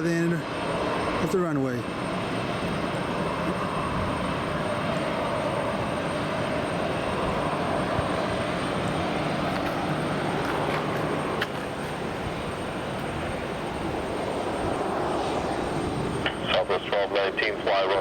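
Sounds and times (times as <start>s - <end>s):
jet engines running: 0.0s - 18.0s.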